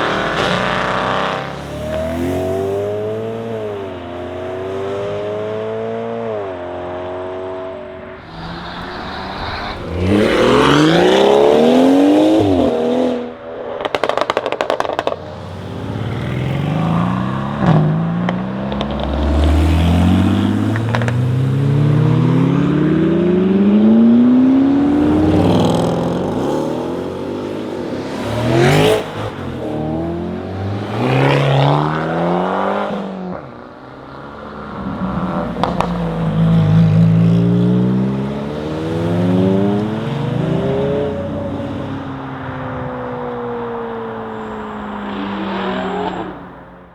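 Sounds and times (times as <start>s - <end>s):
car engine accelerating hard: 0.0s - 46.9s
exhaust pops and crackles: 13.6s - 15.5s.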